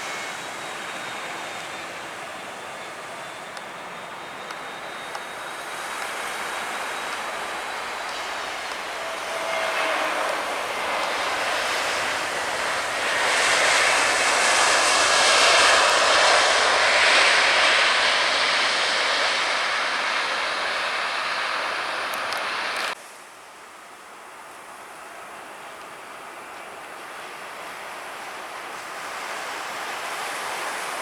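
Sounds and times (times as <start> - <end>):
background wash: 0.0 - 22.6
airliner engine roar: 0.0 - 23.0, 24.8 - 31.0.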